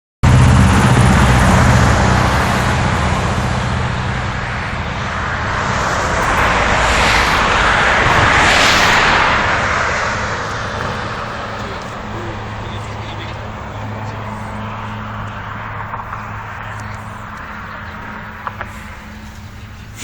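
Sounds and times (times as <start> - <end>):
low engine hum: 0.2 - 20.0
road noise rushing: 0.2 - 20.0.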